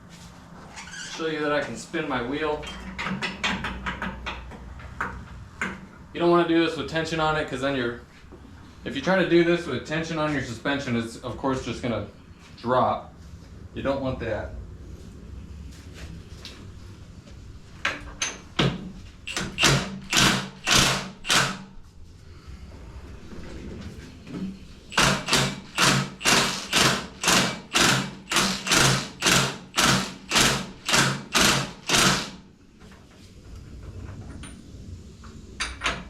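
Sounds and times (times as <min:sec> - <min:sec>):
hand ratchet clicking: 0:19.3 - 0:21.6, 0:24.9 - 0:32.4.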